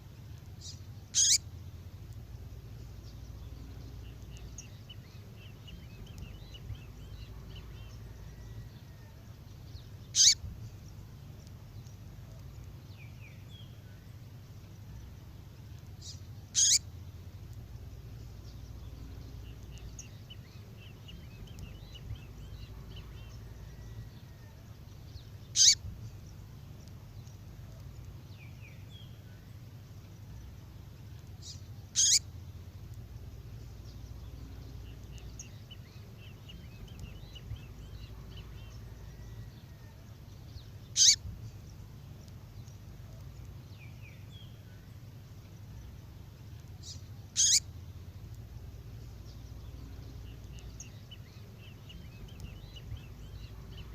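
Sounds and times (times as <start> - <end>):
faint bird twittering: 0.0 - 53.9
low steady hum: 0.0 - 53.9
songbird sharp downward calls: 0.6 - 1.5, 10.1 - 10.5, 16.0 - 16.9, 25.5 - 25.9, 31.4 - 32.3, 40.9 - 41.3, 46.8 - 47.7.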